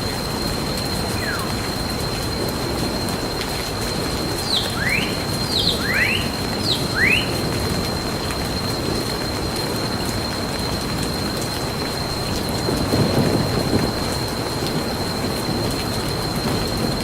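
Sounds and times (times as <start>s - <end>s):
steady rain falling: 0.0s - 17.0s
thin high tone: 1.0s - 2.1s
bird chirping: 1.2s - 1.6s, 4.4s - 7.4s.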